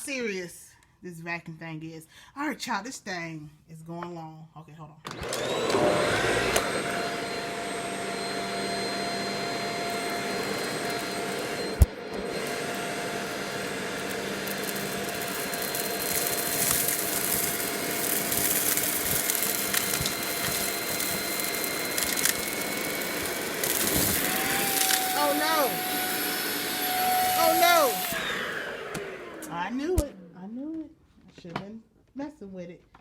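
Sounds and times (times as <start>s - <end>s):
vacuum cleaner motor whining: 5.1s - 30.1s.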